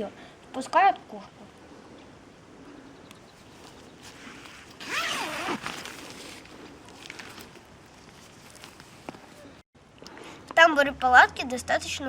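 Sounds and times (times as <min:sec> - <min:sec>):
rustling: 0:02.0 - 0:09.6.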